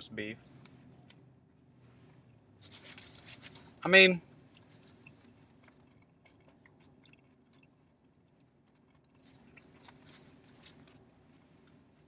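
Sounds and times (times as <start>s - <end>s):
low steady hum: 0.0s - 12.0s
person chewing food: 2.2s - 3.8s, 4.4s - 12.0s.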